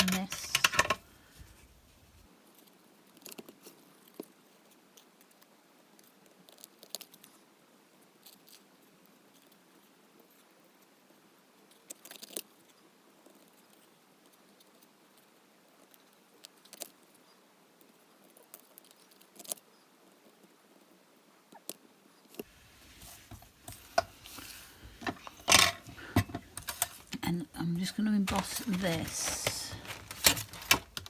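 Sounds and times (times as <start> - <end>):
card and paper rustling: 0.0 - 2.2, 22.5 - 31.0.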